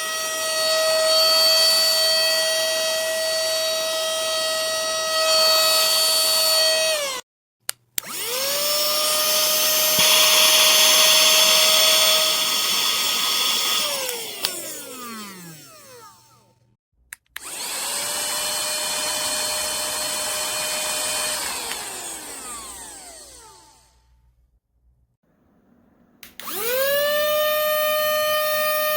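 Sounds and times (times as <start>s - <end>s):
small electric motor whining: 0.0s - 7.2s, 8.0s - 16.6s, 17.4s - 24.1s, 26.4s - 28.9s.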